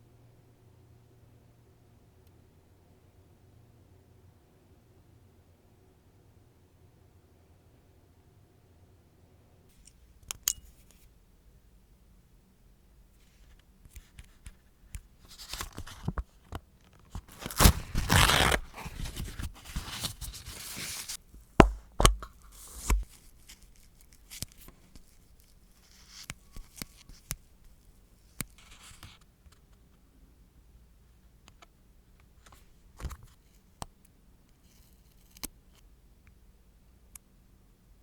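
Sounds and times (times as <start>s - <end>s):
tearing or rasping: 17.3s - 21.2s.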